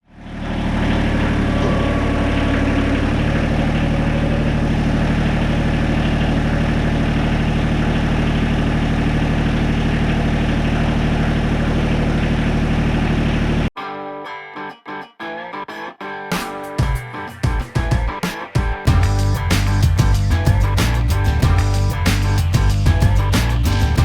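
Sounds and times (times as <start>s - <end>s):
excavator diesel engine running: 0.0s - 13.7s, 18.9s - 24.0s.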